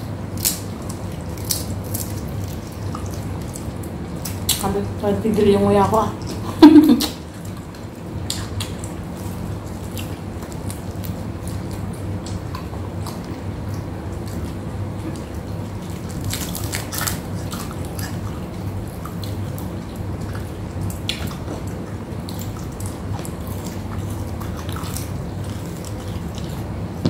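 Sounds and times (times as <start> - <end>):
steady low hum: 0.0 - 27.0
wet chewing and lip smacks: 0.4 - 4.7, 6.2 - 27.0.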